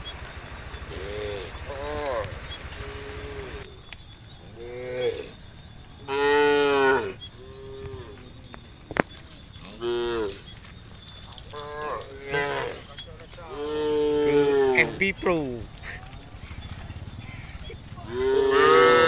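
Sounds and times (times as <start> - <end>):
cattle mooing: 0.8 - 3.6, 11.5 - 12.9, 13.5 - 19.0.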